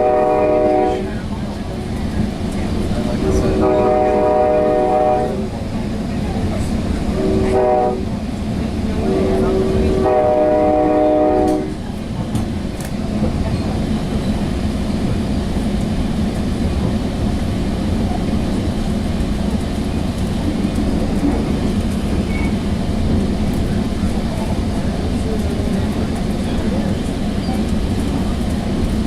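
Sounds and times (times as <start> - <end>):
train air horn: 0.0 - 1.2, 3.3 - 5.5, 7.1 - 8.1, 9.0 - 11.8
train rumbling on rails: 0.0 - 29.0.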